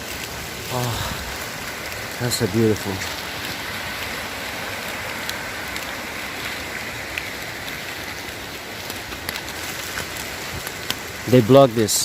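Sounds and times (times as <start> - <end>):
rain falling: 0.0 - 12.0
waterfall rushing: 0.0 - 12.0.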